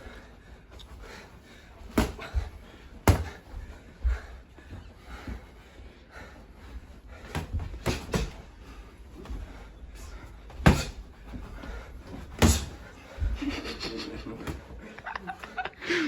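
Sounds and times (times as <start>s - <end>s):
punches thudding: 1.8s - 3.5s, 7.2s - 9.5s, 10.2s - 13.5s, 14.3s - 14.8s.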